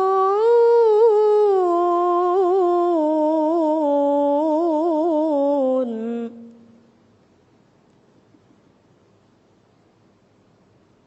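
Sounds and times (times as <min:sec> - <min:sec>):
person reciting melodically: 0:00.0 - 0:06.8.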